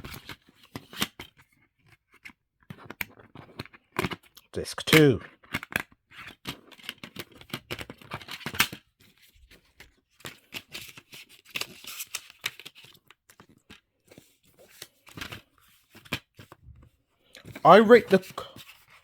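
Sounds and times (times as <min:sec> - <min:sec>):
rustling and scraping: 0:06.6 - 0:19.0.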